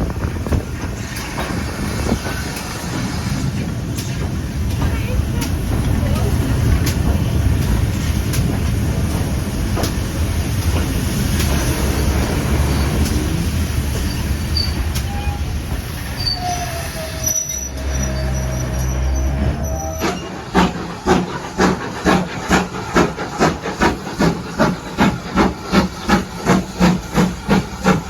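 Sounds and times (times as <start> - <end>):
wheels clicking on track: 0.0 - 16.0, 17.3 - 28.0
train rumbling on rails: 0.0 - 28.0
wheel squeal: 14.0 - 20.8.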